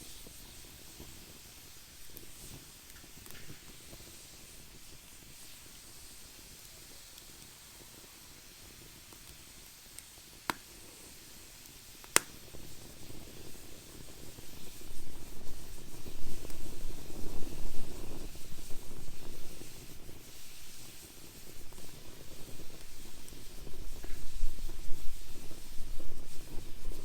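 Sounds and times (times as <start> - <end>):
wood fire crackling pops: 0.0 - 27.0
fire low rushing: 12.5 - 27.0.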